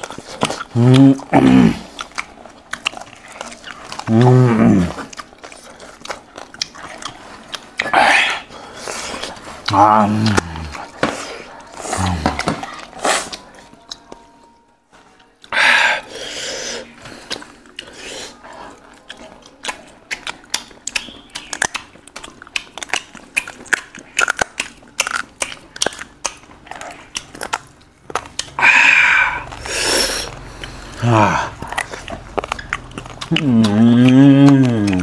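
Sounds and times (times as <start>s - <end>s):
people chewing food: 0.0s - 35.0s
wet mouth clicks and lip smacks: 19.4s - 28.6s, 31.5s - 35.0s.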